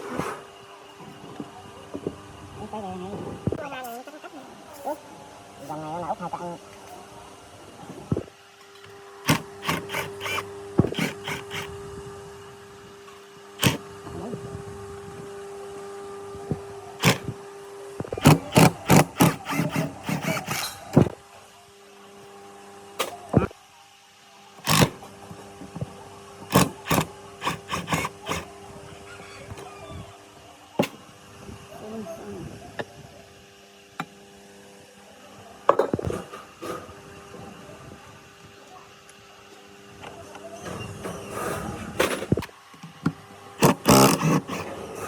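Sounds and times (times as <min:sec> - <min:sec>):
steady hum: 0:04.4 - 0:21.4, 0:24.5 - 0:33.7.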